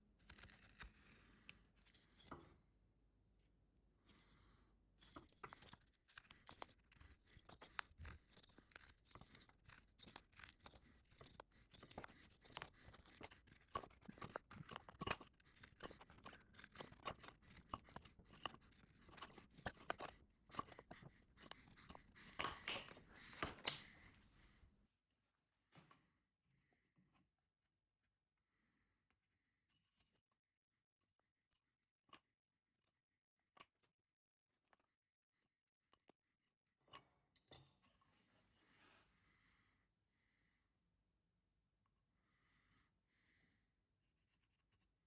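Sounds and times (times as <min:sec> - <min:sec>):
marking tools scratching wood: 0:05.0 - 0:24.3.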